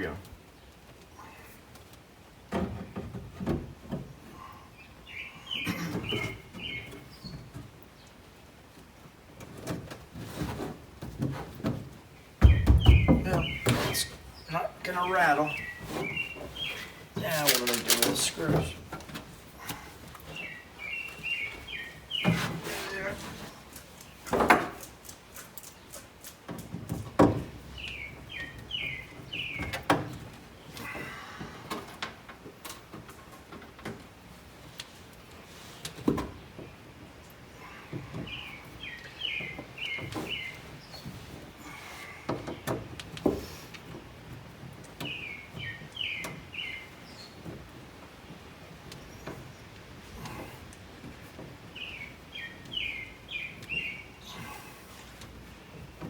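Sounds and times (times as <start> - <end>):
rustling of panels: 0.0 - 56.0
sharp knocks: 12.4 - 14.0
bird chirping: 12.4 - 18.8, 20.3 - 24.4, 38.2 - 41.1, 51.7 - 54.7.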